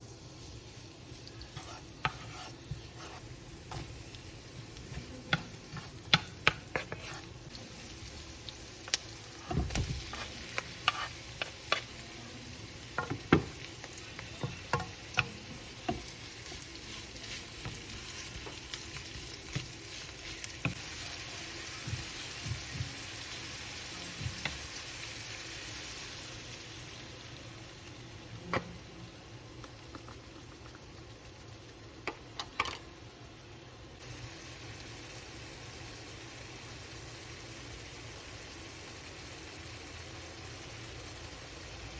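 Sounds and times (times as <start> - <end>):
vegetables sizzling in a pan: 0.0 - 41.9
utensil scraping a pan: 1.2 - 7.6, 9.3 - 12.0.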